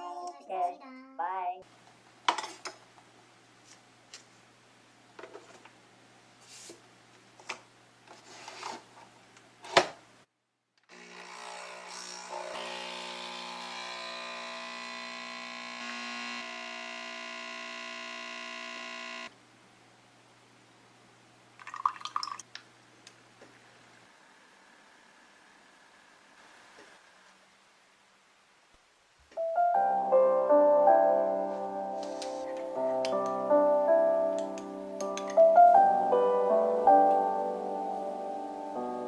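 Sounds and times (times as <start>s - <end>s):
motor hum: 12.4s - 19.3s.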